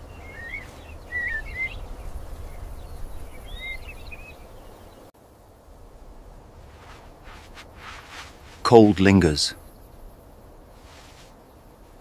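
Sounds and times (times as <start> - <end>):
bird chirps: 0.0 - 1.9.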